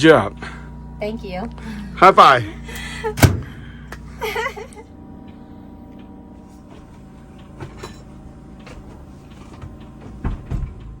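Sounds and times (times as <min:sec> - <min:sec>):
low steady hum: 0:00.0 - 0:11.0
loud thuds: 0:03.2 - 0:03.7.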